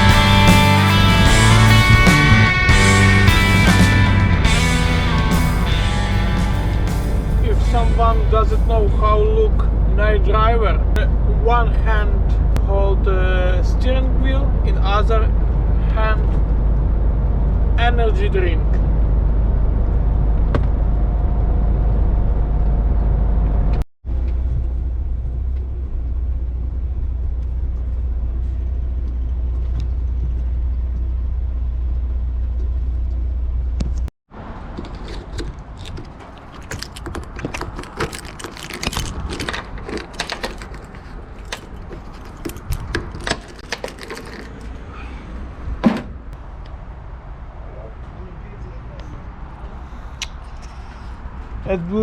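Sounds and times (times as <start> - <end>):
truck cab rumble: 0.0 - 10.0
clicks and light rattles: 34.8 - 44.8.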